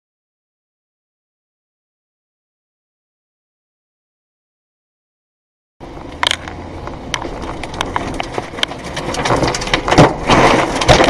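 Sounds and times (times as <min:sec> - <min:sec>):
debris knocking and clattering: 0:07.1 - 0:11.0.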